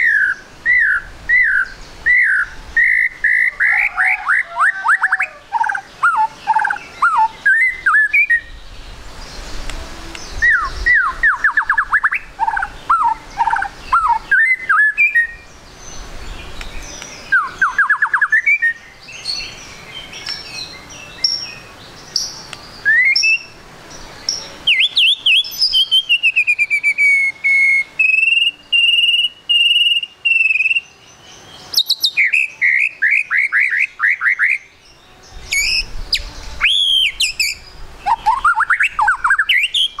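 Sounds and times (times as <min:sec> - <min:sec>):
bird calling with chips and whistles: 0:00.0 - 0:08.6, 0:10.2 - 0:15.5, 0:16.6 - 0:19.5, 0:20.2 - 0:23.6, 0:24.2 - 0:40.0.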